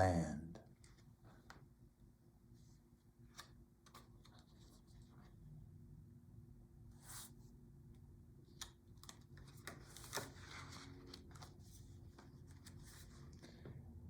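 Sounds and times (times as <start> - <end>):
book pages turning: 8.5 - 13.7.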